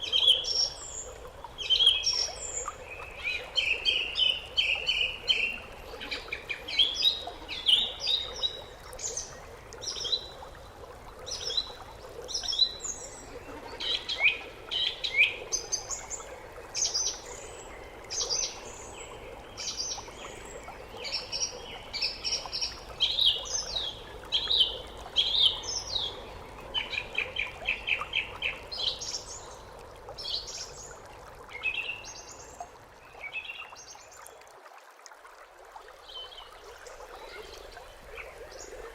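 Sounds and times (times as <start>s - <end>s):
songbirds chirping and trilling: 0.0s - 34.2s.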